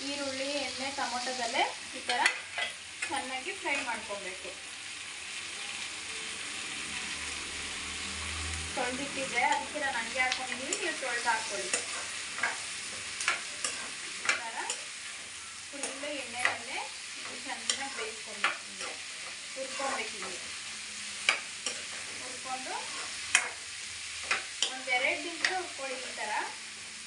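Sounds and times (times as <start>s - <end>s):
chicken frying in oil: 0.0s - 27.0s
spatula scraping a pan: 10.5s - 26.1s.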